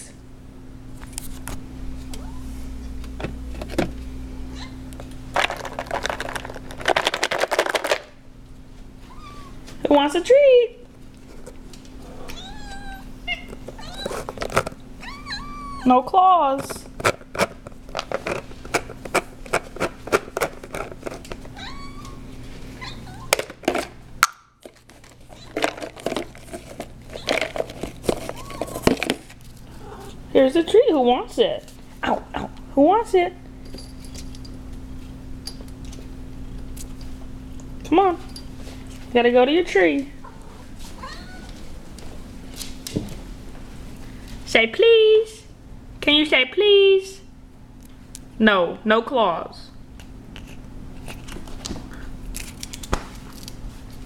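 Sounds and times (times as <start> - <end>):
steady low hum: 0.0 - 54.0
rattling crackles: 5.4 - 8.1
bag crinkling: 5.4 - 8.2, 24.7 - 29.7
cat meowing: 9.1 - 9.6, 12.1 - 14.2, 15.0 - 15.9, 21.6 - 22.2, 41.0 - 41.6.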